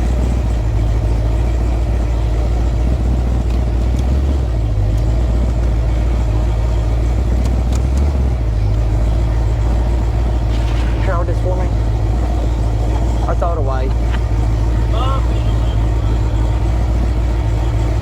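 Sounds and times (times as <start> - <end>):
v eight engine rumbling: 0.0 - 18.0.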